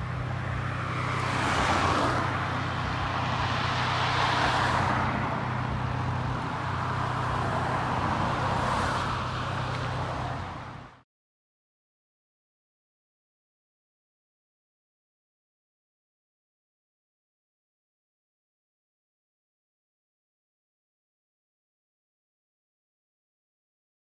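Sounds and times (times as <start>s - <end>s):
cars passing: 0.0s - 11.0s.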